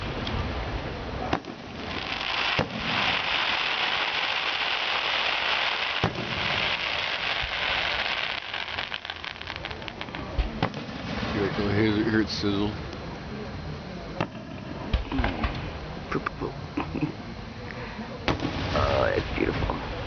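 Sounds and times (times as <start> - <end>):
firework bangs: 0.0 - 12.2, 14.2 - 15.8, 18.2 - 19.8
crackling hiss of bursting shells: 1.3 - 11.7, 18.3 - 19.5.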